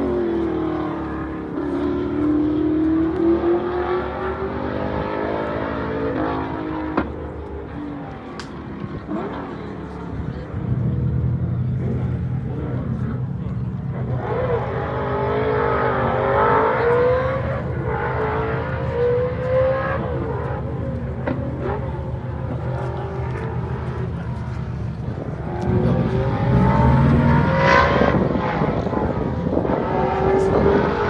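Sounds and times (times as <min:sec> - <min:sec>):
rally car engine accelerating: 0:00.0 - 0:31.0.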